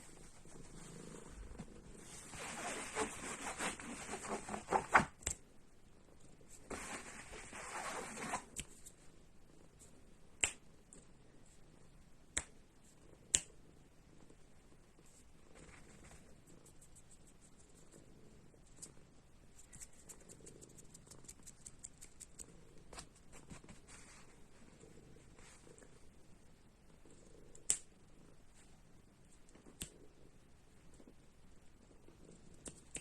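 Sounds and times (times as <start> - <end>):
kitten purring: 0.0 - 4.7, 12.8 - 33.0
scratchy rustling: 0.0 - 5.0.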